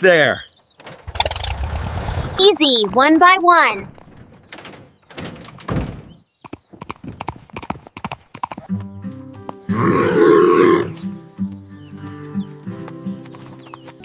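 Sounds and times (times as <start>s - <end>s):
hooves clopping: 6.4s - 14.0s
gentle background music: 8.7s - 14.0s
loud animal call: 9.7s - 11.0s.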